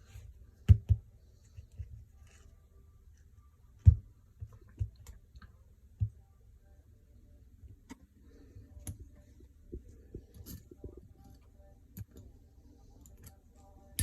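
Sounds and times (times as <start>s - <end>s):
small parts and tools clicking: 10.3s - 14.0s.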